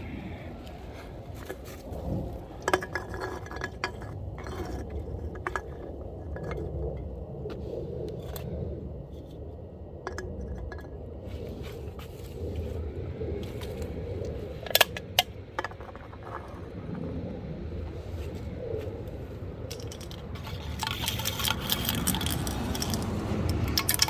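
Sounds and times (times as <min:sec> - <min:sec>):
low rumble: 0:00.0 - 0:24.0
metallic clinks of cans: 0:19.7 - 0:24.0.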